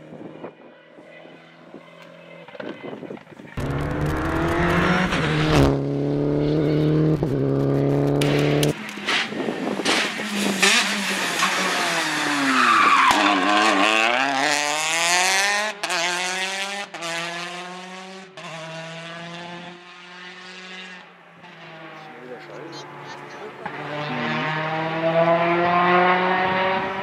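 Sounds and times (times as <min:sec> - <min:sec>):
tyres skidding: 0:03.3 - 0:15.5
rally car engine accelerating: 0:03.6 - 0:27.0.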